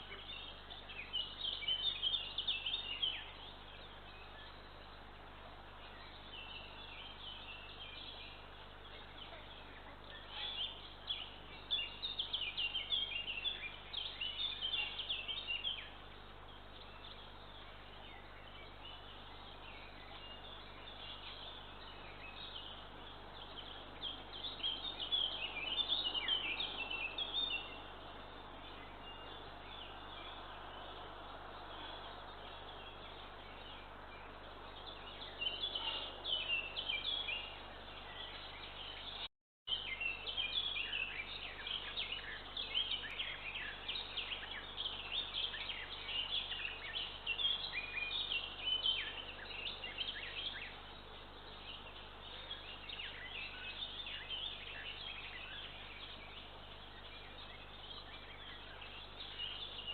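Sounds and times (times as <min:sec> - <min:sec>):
songbirds chirping and singing: 0:00.0 - 0:59.9.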